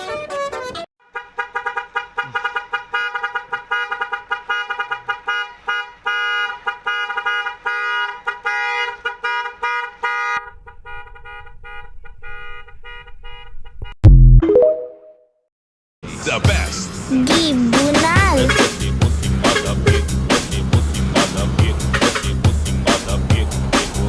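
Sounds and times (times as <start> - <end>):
truck horn blasts: 1.0 - 13.9, 18.4 - 22.8
low engine rumble: 16.5 - 24.0.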